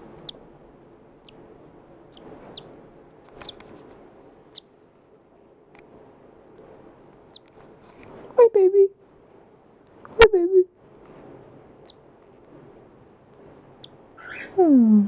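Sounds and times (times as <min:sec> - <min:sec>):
bird chick peeping: 0:00.0 - 0:03.7.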